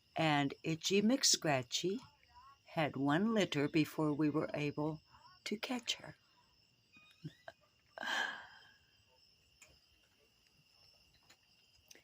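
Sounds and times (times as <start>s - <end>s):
insects trilling: 0.0s - 12.0s
breathy sigh: 8.0s - 8.8s.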